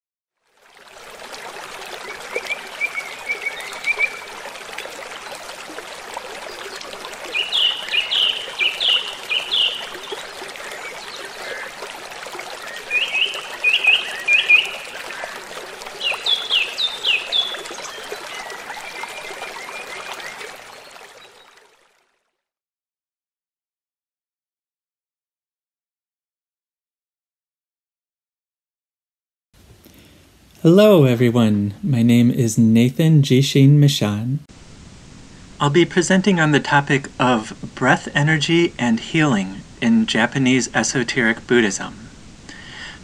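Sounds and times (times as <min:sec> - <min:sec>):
faint lower bird chirping: 0:02.0 - 0:04.4, 0:06.4 - 0:11.9, 0:12.5 - 0:21.6
bird whistling song: 0:02.4 - 0:04.3, 0:07.3 - 0:11.7, 0:12.6 - 0:15.4, 0:16.0 - 0:21.5.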